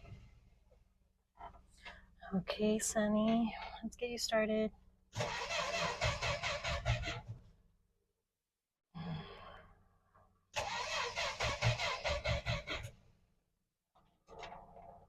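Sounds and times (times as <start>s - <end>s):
starter cranking engine: 5.2s - 7.2s, 10.6s - 13.0s.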